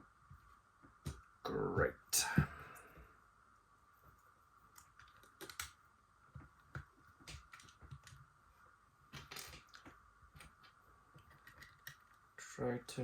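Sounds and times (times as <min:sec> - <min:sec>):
faint background hum: 0:00.0 - 0:13.0
plastic parts clicking and rustling: 0:04.7 - 0:05.8, 0:06.7 - 0:08.2, 0:09.1 - 0:12.2.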